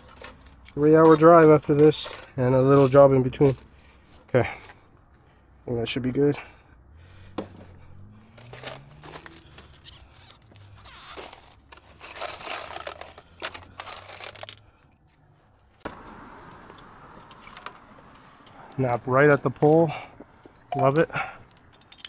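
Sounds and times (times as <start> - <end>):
scraping and rustling: 0.0 - 4.3, 8.3 - 15.8.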